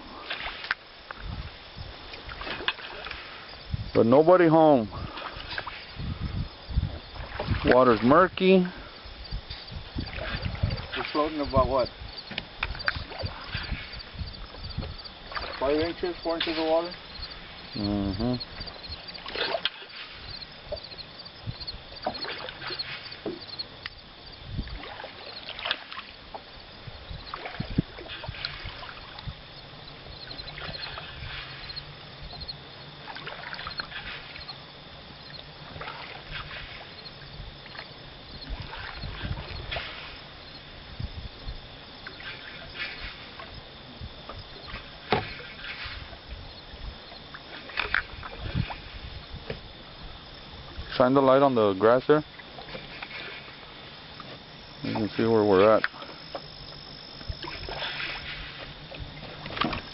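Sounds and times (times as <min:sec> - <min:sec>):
water sloshing around a boat hull: 0:00.0 - 0:59.9
knocks on boat: 0:45.0 - 0:45.4, 0:49.4 - 0:49.7.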